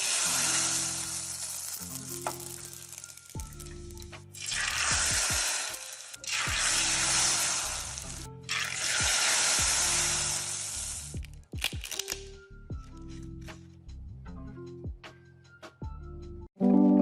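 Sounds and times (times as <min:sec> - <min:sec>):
food sizzling in hot oil: 0:00.0 - 0:03.7, 0:04.4 - 0:11.2
background music with beat: 0:01.4 - 0:09.9, 0:11.2 - 0:17.0.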